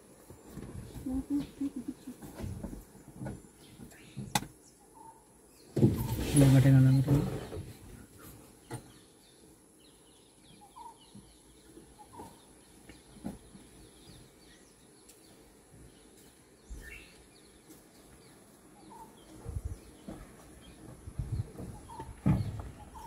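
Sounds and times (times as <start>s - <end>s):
faint bird chirps: 3.5s - 17.6s, 18.2s - 23.0s.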